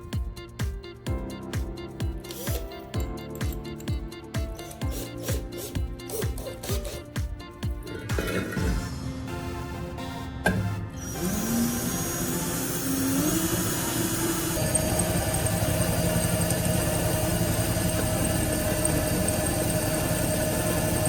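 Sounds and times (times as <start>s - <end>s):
power tool motor whining: 11.1s - 21.0s.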